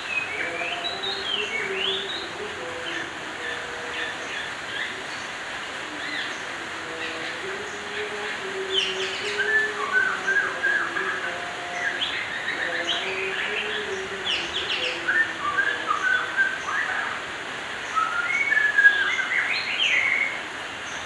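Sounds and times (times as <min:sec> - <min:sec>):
bird singing whistled notes: 0:17.8 - 0:20.4.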